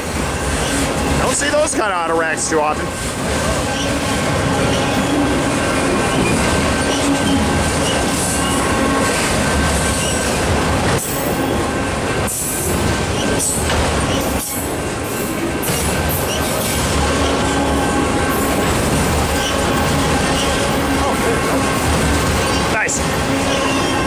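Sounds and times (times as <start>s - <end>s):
freight train rolling past: 0.0s - 24.0s
thin wheel squeal: 9.9s - 10.3s.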